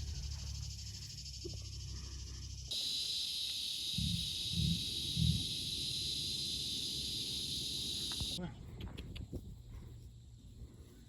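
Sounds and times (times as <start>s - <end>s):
high insect chorus buzzing: 0.0s - 8.4s.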